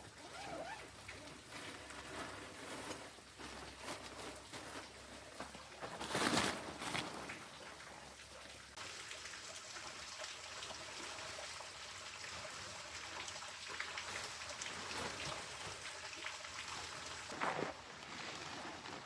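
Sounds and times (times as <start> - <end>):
rain pattering: 0.0 - 19.0
drips and ticks: 6.8 - 17.4.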